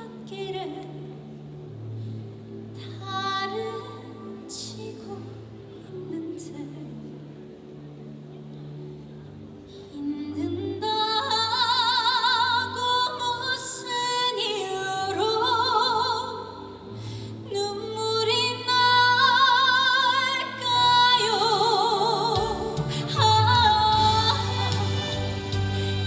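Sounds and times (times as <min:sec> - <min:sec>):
woman singing: 0:00.0 - 0:01.2, 0:02.8 - 0:07.2, 0:10.0 - 0:26.0
backing track music: 0:21.6 - 0:26.0.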